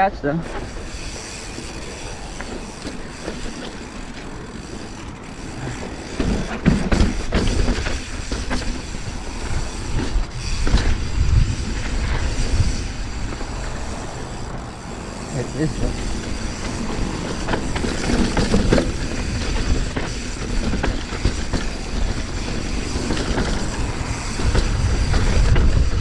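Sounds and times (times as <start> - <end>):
bike rattling over rocks: 0.4 - 26.0
wind noise on microphone: 5.2 - 26.0.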